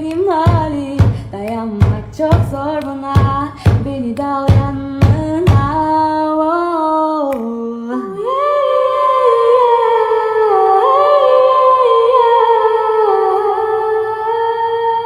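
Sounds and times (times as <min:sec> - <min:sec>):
high voice singing wordless melody: 0:00.0 - 0:15.0.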